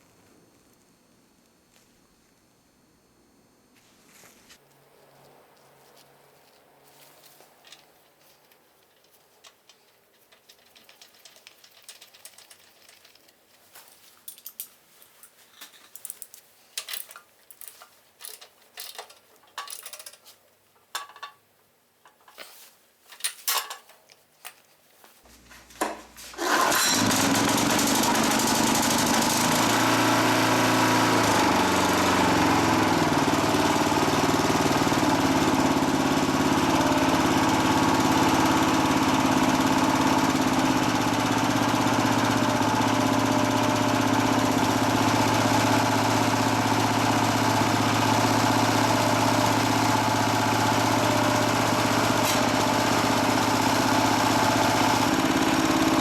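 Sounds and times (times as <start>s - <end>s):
small engine running: 26.4s - 56.0s.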